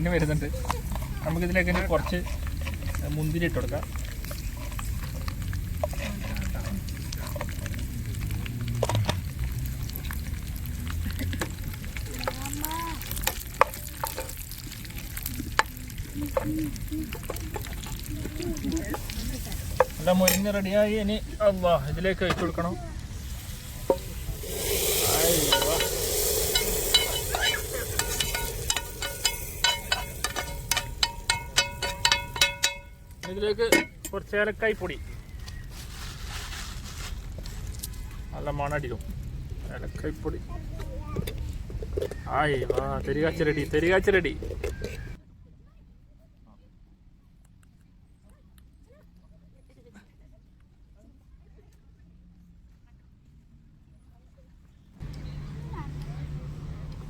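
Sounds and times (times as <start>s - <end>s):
hot ghee sizzling in a pot: 0.0s - 35.7s
nuts frying with crackles and pops: 0.0s - 35.7s, 55.0s - 57.0s
spoon clinking against metal: 23.9s - 34.2s.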